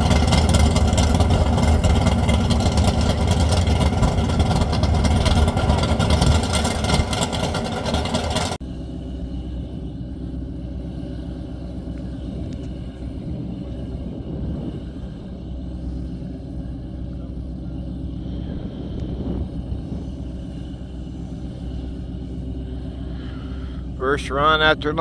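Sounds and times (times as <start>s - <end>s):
engine hiss: 0.0s - 25.0s
loud vehicle engine rumble: 0.0s - 25.0s
quiet low rumble: 0.0s - 25.0s.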